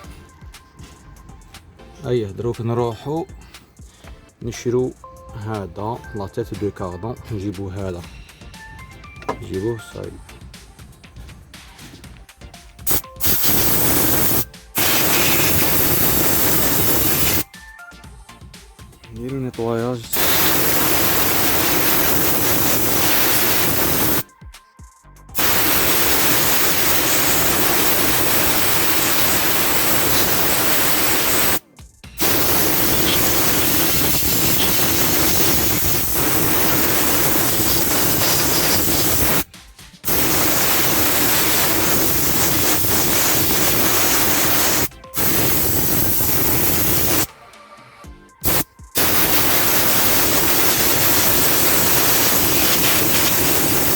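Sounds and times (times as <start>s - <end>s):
spray gun hissing: 12.8s - 17.5s, 20.1s - 24.3s, 25.4s - 31.6s, 32.2s - 47.3s, 48.4s - 53.9s.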